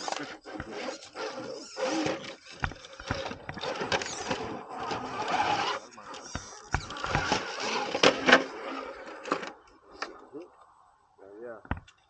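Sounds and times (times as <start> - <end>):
small electric motor whirring: 0.0 - 9.6
tires scraping over rock: 0.0 - 10.3
sharp knocks: 11.6 - 12.0.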